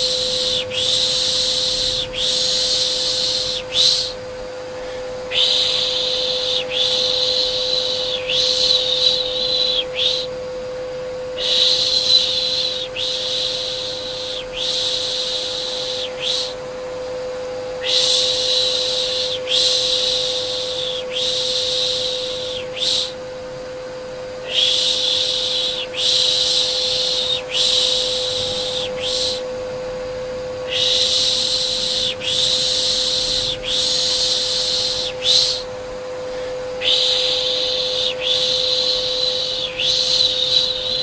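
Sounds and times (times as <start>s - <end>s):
person shushing a baby: 0.0s - 4.2s, 4.8s - 10.3s, 11.4s - 16.6s, 24.5s - 29.4s, 30.7s - 35.7s, 36.8s - 41.0s
vacuum cleaner hum: 0.0s - 41.0s.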